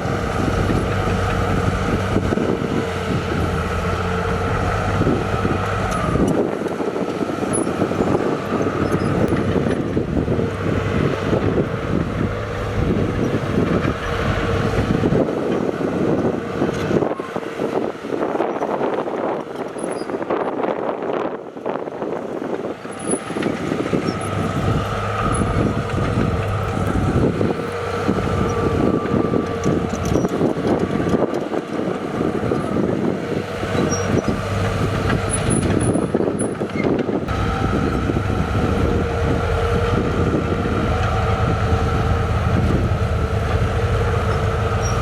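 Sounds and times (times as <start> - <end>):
heavy machinery diesel engine: 0.0 - 45.0.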